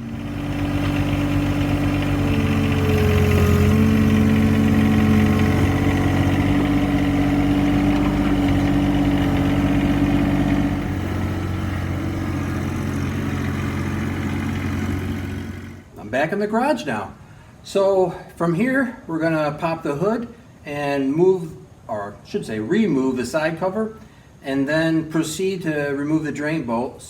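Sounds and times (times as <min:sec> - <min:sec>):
tractor diesel engine running: 0:00.0 - 0:15.9.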